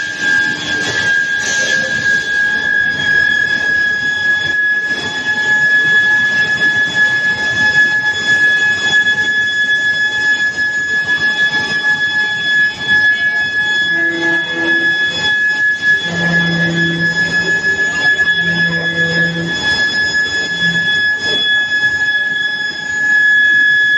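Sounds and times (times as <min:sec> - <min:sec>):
high-pitched induction coil whine: 0:00.0 - 0:23.9
rushing mechanical noise: 0:04.0 - 0:22.7.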